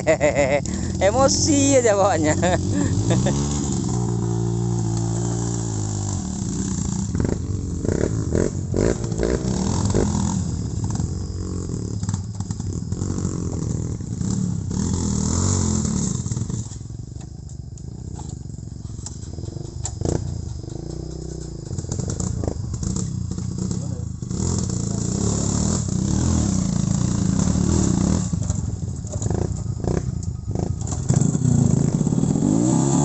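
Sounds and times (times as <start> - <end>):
motorcycle engine revving: 0.0 - 33.0
sharp knocks and clatter: 18.1 - 23.8.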